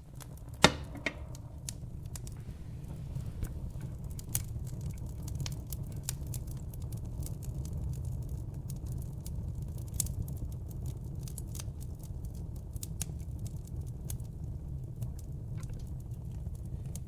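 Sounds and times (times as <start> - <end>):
fire popping: 0.0 - 17.0
fireplace fire crackling: 0.0 - 17.0.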